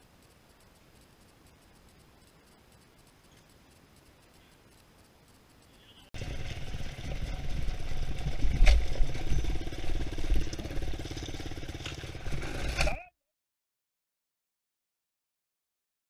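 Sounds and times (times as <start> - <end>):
dirt bike engine at low revs: 6.2 - 13.0
bike knocking over rocks: 8.0 - 13.0.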